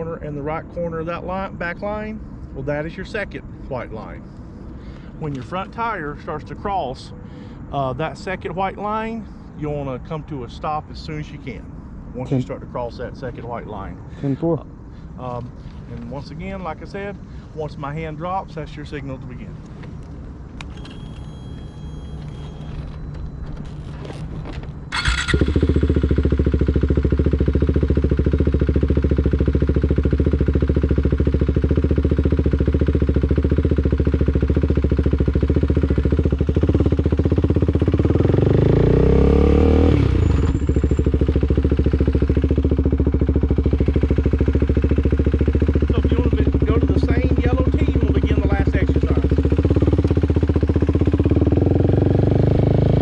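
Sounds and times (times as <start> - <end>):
motorcycle engine revving: 23.6 - 53.0.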